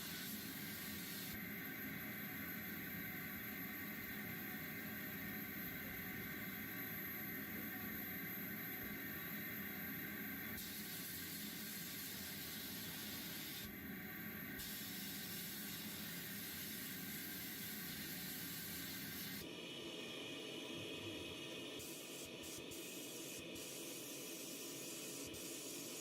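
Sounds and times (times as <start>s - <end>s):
hissing air spray: 10.6s - 13.7s, 14.6s - 19.4s, 21.8s - 26.0s.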